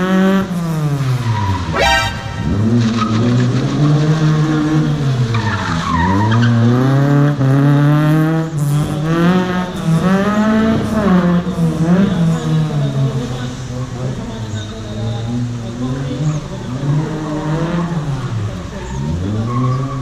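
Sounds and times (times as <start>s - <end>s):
car engine revving hard: 0.0s - 12.7s.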